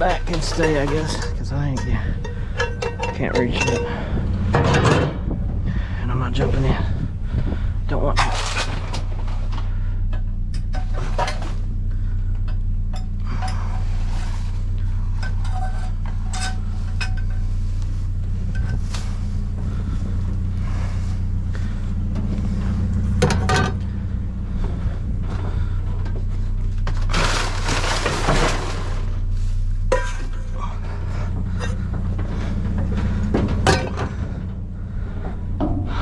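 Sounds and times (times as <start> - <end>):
metal and glass clinking: 0.0 - 5.2, 15.2 - 17.4, 29.9 - 30.6
rustling and rattling: 0.0 - 36.0
truck engine idling: 0.0 - 36.0.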